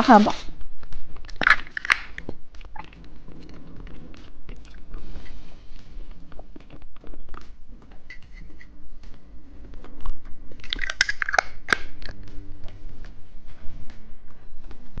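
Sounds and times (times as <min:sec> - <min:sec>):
plastic candy wrapper crinkling: 0:01.2 - 0:03.0, 0:10.6 - 0:12.2.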